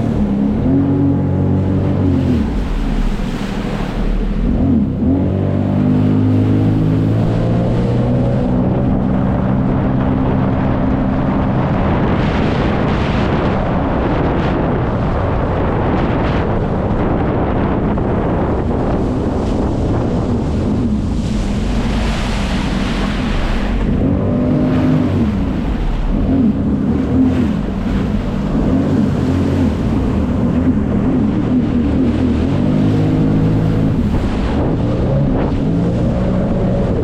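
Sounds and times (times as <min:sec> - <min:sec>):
jet ski engine running: 0:00.0 - 0:37.0
water rushing: 0:00.0 - 0:37.0
wind buffeting microphone: 0:00.0 - 0:37.0.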